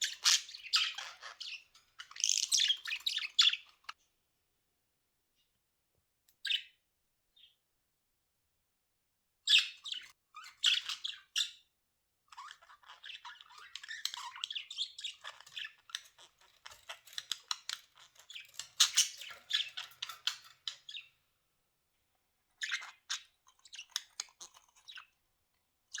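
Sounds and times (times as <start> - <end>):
budgerigars chattering and squawking: 0.0 - 4.0, 9.5 - 11.5, 12.4 - 21.1, 22.6 - 25.1.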